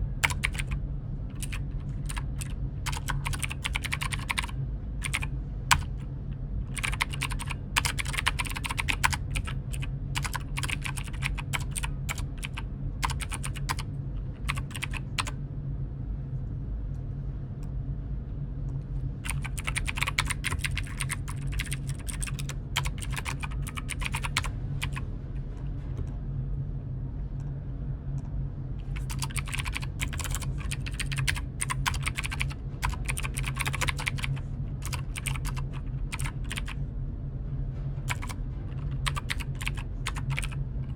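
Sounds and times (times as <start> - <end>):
steady low hum: 0.0 - 40.9
computer keyboard typing: 0.2 - 6.0, 6.7 - 15.4, 19.2 - 25.0, 28.9 - 36.8, 38.1 - 40.9.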